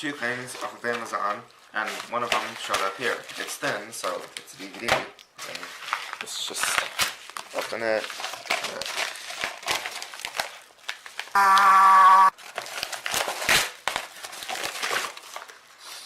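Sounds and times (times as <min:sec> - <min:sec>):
packaging crinkling: 0:05.4 - 0:11.4, 0:12.3 - 0:15.8
mailer tearing open: 0:12.4 - 0:15.4.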